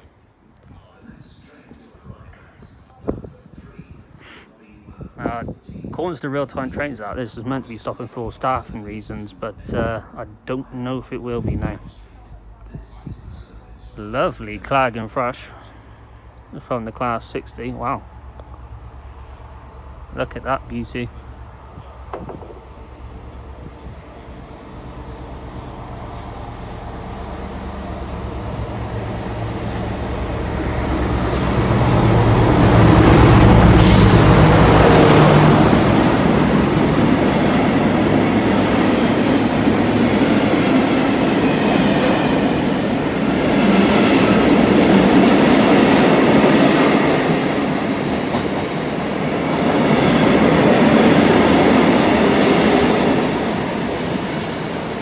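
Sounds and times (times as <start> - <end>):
diesel locomotive working hard: 15.7 - 55.0
high thin wheel squeal: 51.2 - 54.9.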